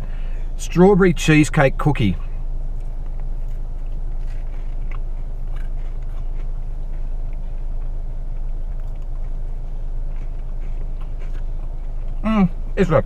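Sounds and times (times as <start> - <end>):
low rumble inside car cabin: 0.0 - 13.0
quiet chewing of a cookie: 2.2 - 12.6.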